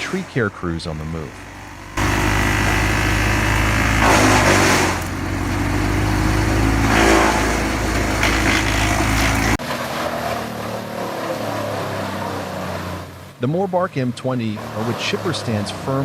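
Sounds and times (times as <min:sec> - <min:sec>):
wood chipper engine running: 0:00.0 - 0:13.3
quieter machine running: 0:01.2 - 0:09.6
branches being chipped: 0:02.0 - 0:09.6.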